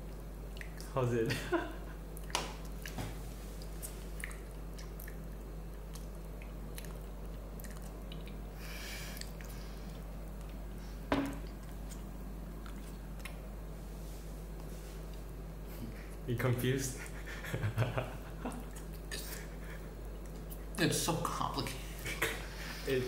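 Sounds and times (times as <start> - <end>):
person chewing: 0.0 - 0.9, 2.1 - 13.5, 18.5 - 20.8
wet mouth clicks: 0.5 - 0.9, 3.6 - 5.2.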